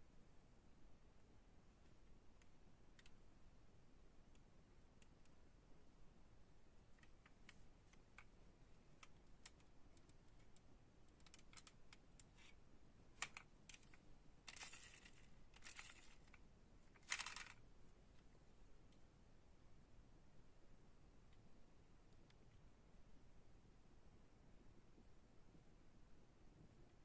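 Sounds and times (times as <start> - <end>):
toy cars clicking and tapping: 11.2 - 12.6, 13.2 - 16.4, 17.0 - 17.6.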